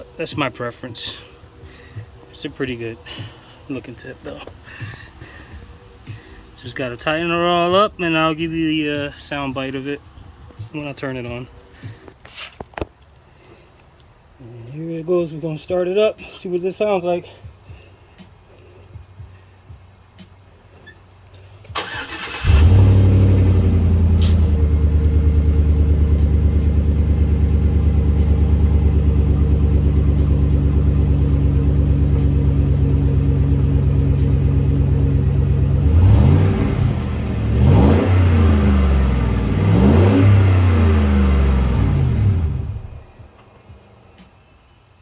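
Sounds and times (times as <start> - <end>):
pickup engine idling and revving: 0.0 - 11.8, 21.6 - 43.4
engine cranking: 21.6 - 26.7.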